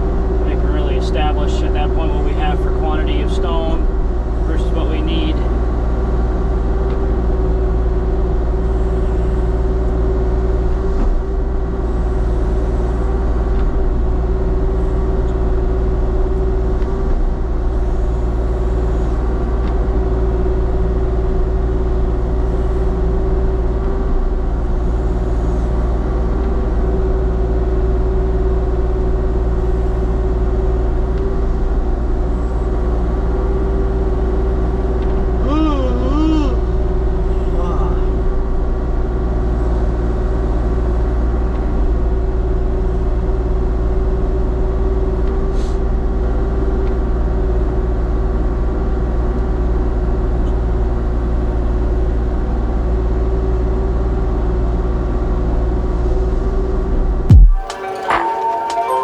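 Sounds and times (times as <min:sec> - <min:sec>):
diesel engine running: 0:00.0 - 0:59.0
steady whine: 0:57.3 - 0:59.0.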